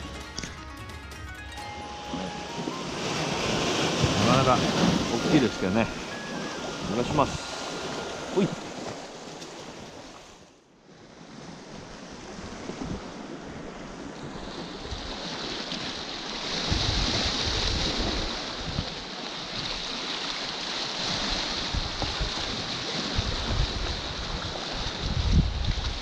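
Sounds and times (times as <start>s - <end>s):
sea surf on rocky shore: 0.0s - 26.0s
wind rumbling on microphone: 11.4s - 19.8s, 21.0s - 26.0s.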